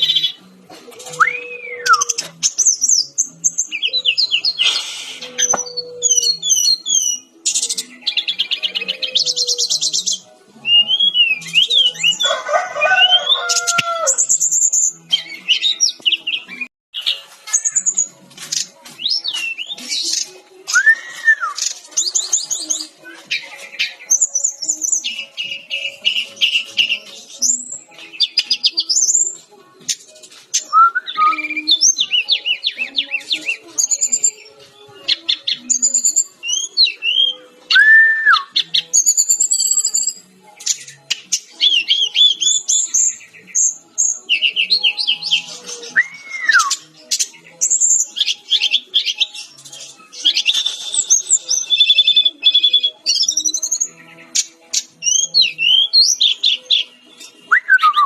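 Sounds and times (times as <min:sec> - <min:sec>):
bird singing chirps and trills: 0:00.0 - 0:58.0.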